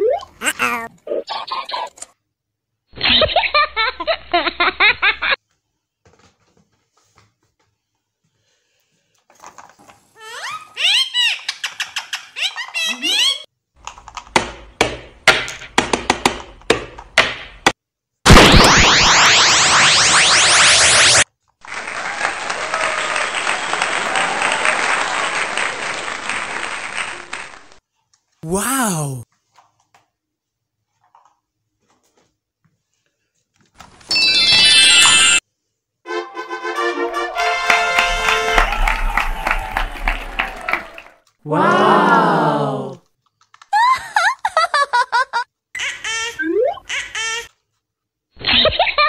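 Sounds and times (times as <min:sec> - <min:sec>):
crowd clapping: 0:21.6 - 0:27.8, 0:37.2 - 0:41.2.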